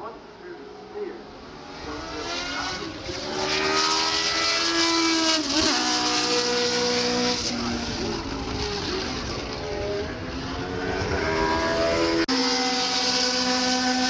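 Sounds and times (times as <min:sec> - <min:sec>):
race car engine passing by: 0:01.4 - 0:14.0.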